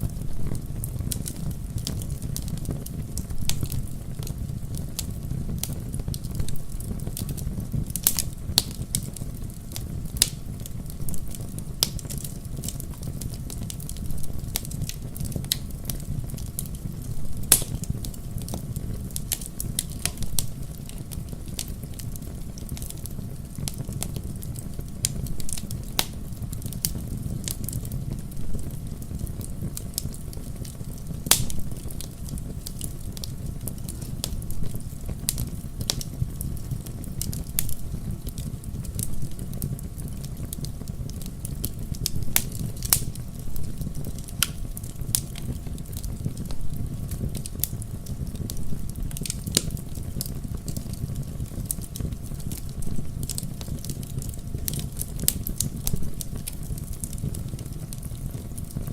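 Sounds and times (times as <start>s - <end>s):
fireplace fire crackling and popping: 0.0s - 58.9s.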